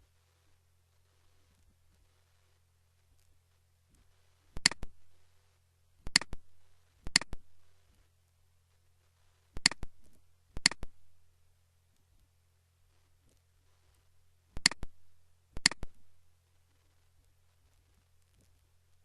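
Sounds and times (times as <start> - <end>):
faint electrical hum: 0.0 - 19.0
mouse button clicks: 4.6 - 4.9, 6.1 - 6.4, 7.1 - 7.4, 9.6 - 9.9, 10.6 - 10.9, 14.6 - 15.0, 15.6 - 16.0.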